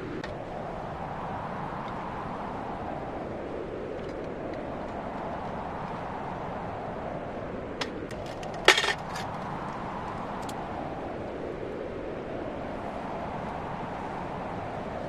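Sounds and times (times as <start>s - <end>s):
strong wind rushing: 0.0s - 15.0s
gear clicks and clinks: 7.8s - 9.4s.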